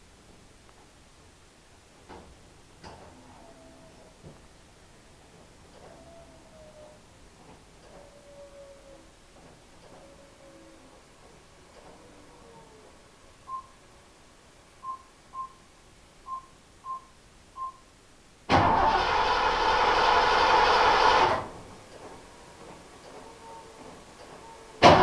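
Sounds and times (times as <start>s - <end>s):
short electronic beeps: 16.3s - 17.9s
starter cranking engine: 18.5s - 21.5s.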